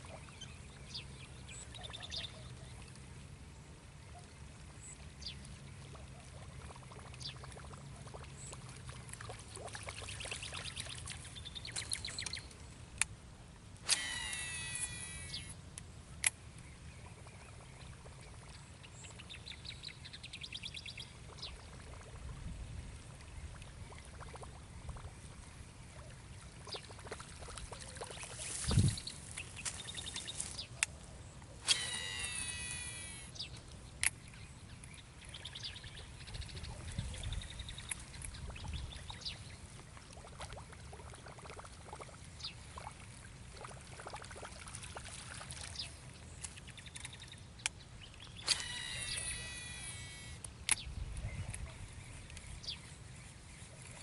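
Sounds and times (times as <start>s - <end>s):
birds calling: 13.8s - 15.6s, 27.8s - 39.4s, 45.7s - 54.0s.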